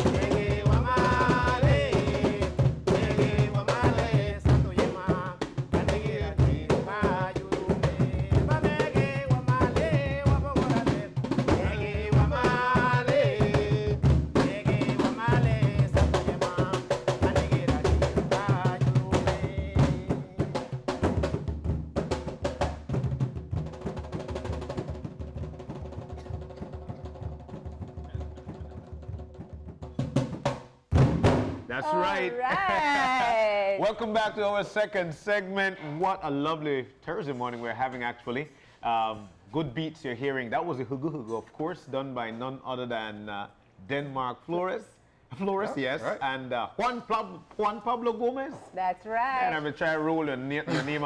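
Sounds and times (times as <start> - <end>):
person singing: 0.0 - 20.6, 31.8 - 33.8
hand drums fast rhythm: 0.0 - 34.4.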